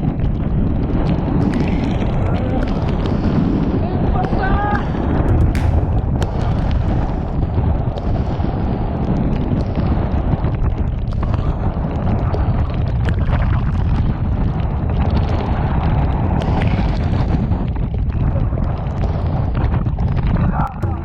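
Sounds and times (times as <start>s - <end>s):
strong wind buffeting microphone: 0.0s - 12.8s.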